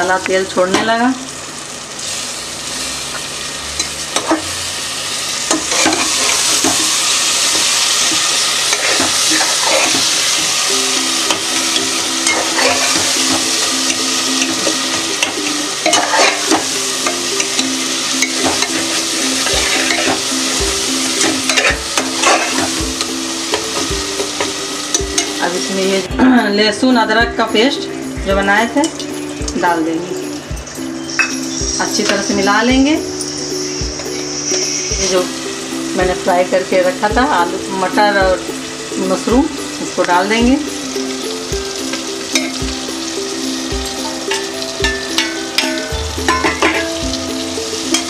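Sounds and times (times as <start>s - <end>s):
masala sizzling in oil: 0.0s - 48.0s
metal spatula scraping pot: 5.5s - 10.4s, 12.2s - 13.6s, 14.4s - 22.8s.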